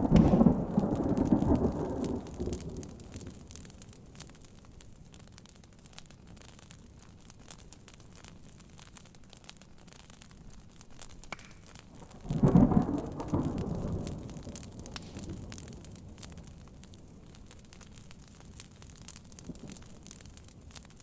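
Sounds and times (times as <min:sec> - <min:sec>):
thunder rumble: 0:00.0 - 0:03.6, 0:12.1 - 0:16.2
rain pattering on a tent: 0:00.0 - 0:21.0
wood fire crackling: 0:00.0 - 0:21.0.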